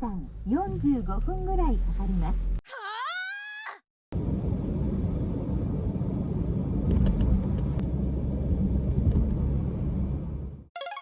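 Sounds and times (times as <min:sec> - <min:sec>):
car interior road rumble: 0:04.2 - 0:10.6.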